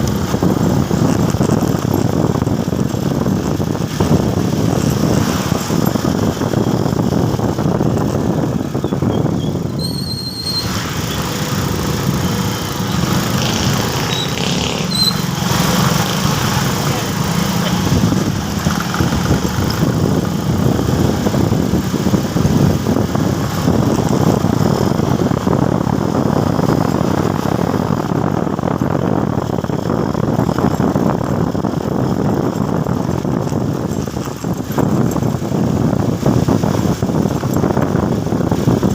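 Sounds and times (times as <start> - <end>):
motorcycle engine running: 0.0 - 38.9
road and wind noise: 0.0 - 38.9
high-pitched squeal: 8.8 - 18.0.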